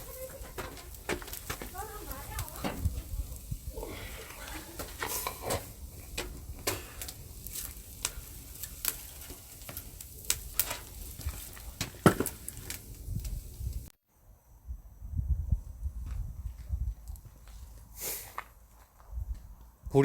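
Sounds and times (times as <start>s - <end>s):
firewood popping and snapping: 0.0s - 13.9s
fire low hiss: 0.0s - 20.0s.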